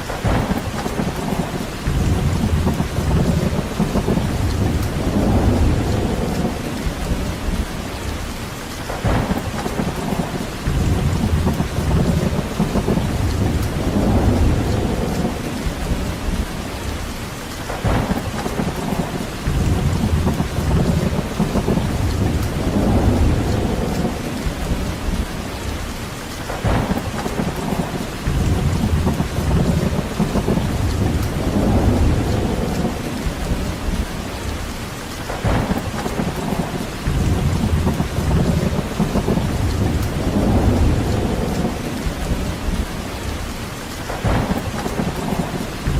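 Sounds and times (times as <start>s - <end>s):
rain falling: 0.0s - 45.9s
low rumbling: 10.6s - 17.0s, 19.0s - 25.9s, 27.8s - 34.7s, 36.6s - 43.5s.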